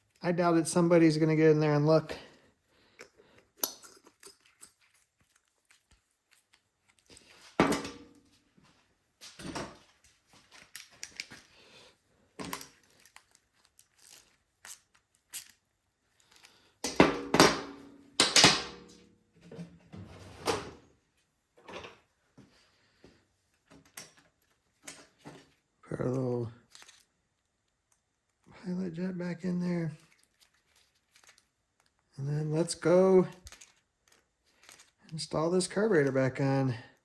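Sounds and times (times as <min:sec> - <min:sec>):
small metal parts clicking: 0:12.5 - 0:15.6, 0:26.7 - 0:27.1, 0:30.0 - 0:32.0, 0:33.4 - 0:35.0.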